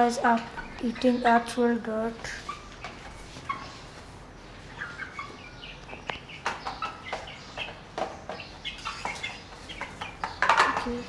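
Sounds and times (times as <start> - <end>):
chicks cheeping: 0.0 - 11.0.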